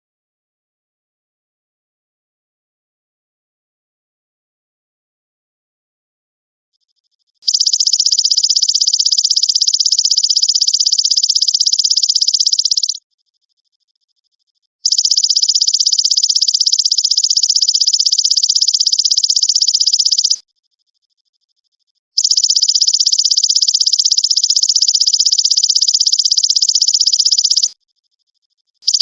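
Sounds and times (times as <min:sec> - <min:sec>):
grasshopper pulsed trill: 0:07.5 - 0:13.0, 0:14.8 - 0:20.4, 0:22.2 - 0:27.8.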